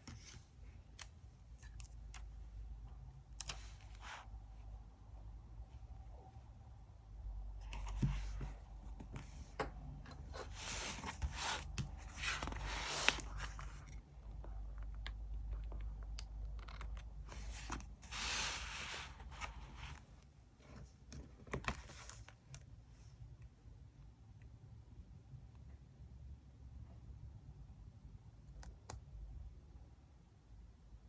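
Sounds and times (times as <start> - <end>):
paper rustling and scraping: 7.6 - 9.5, 10.3 - 14.0, 17.2 - 20.1.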